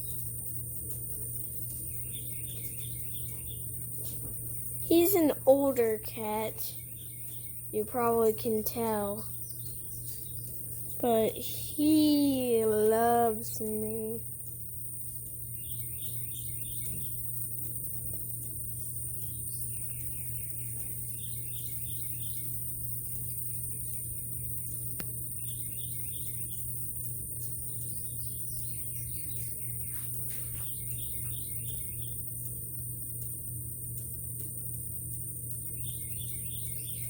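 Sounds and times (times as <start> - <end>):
steady low hum: 0.0 - 37.0
songbird singing trilled phrases: 1.8 - 3.9, 4.5 - 14.3, 15.5 - 17.5, 18.6 - 32.5, 35.3 - 37.0.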